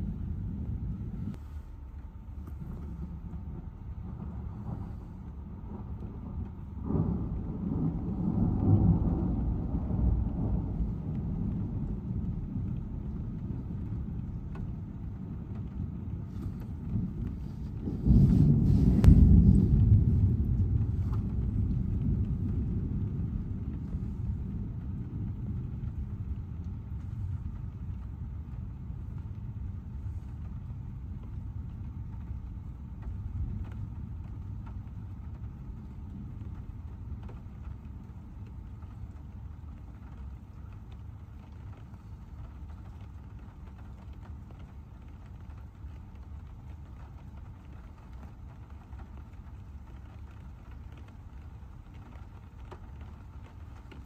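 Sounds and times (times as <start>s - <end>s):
thunder rumbling: 0.0s - 54.0s
car driving on road hum: 10.8s - 24.4s.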